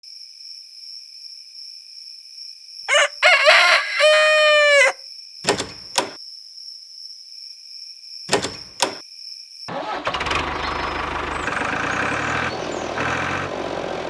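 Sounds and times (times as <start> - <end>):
rooster crowing: 2.9 - 5.0.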